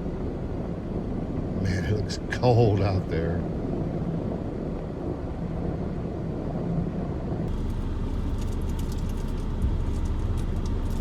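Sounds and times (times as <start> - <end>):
car engine and tyres rumbling: 0.0 - 11.0
faint crackle: 7.5 - 11.0.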